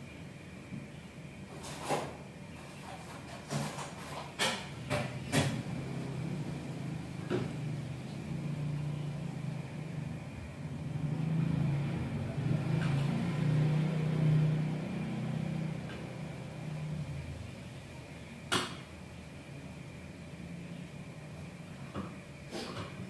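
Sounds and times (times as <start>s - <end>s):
low motor hum: 5.4s - 18.3s.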